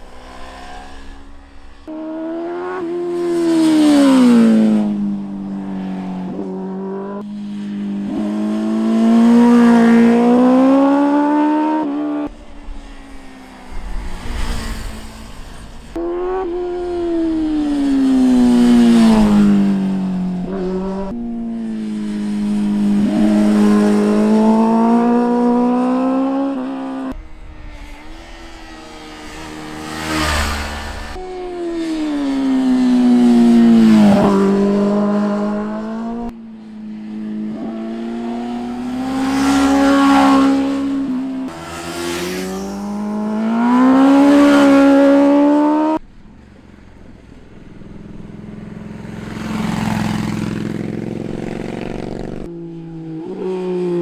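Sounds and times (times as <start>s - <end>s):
motorcycles passing at speed: 0.0s - 54.0s.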